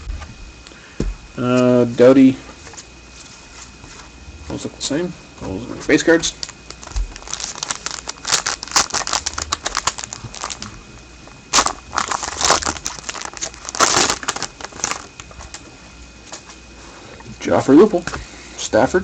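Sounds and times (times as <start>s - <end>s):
wrapper crinkling: 6.3s - 10.8s, 11.5s - 15.6s.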